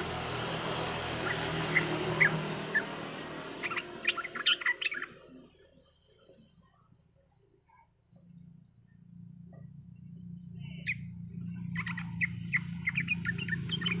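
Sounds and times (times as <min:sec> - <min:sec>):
bird singing bubbly chirps: 0:01.2 - 0:05.5, 0:10.7 - 0:14.0.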